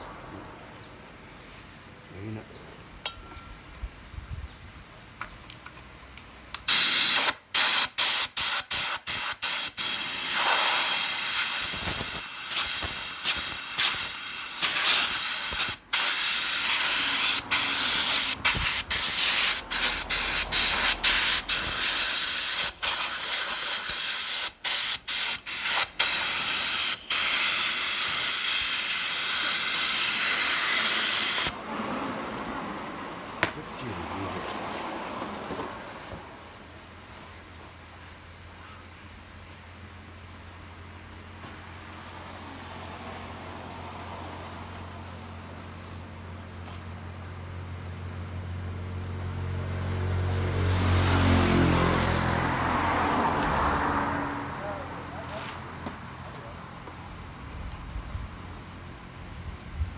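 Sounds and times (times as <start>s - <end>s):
pressurised spray hissing: 6.7s - 31.6s.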